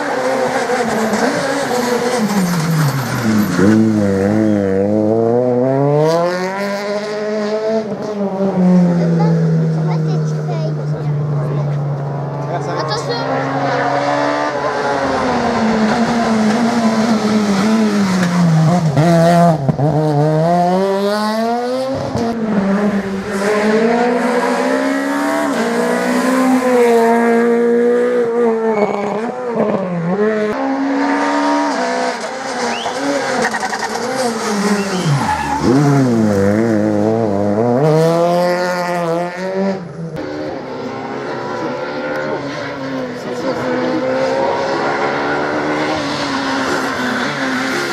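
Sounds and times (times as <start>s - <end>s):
rally car engines revving: 0.0s - 47.9s
tyre squeal: 28.6s - 29.3s, 32.6s - 36.0s.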